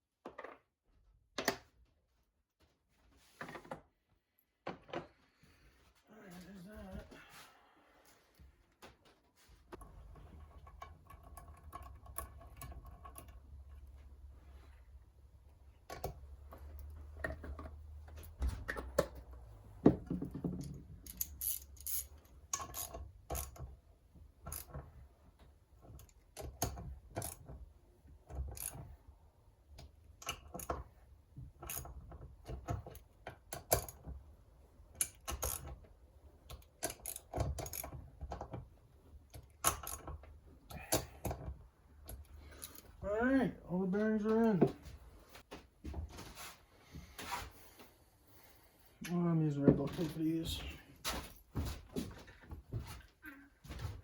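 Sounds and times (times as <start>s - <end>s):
tools clicking and knocking: 9.7s - 14.0s, 15.8s - 23.8s, 24.4s - 25.0s, 25.8s - 27.6s, 28.2s - 29.0s, 29.7s - 34.2s, 34.9s - 43.0s.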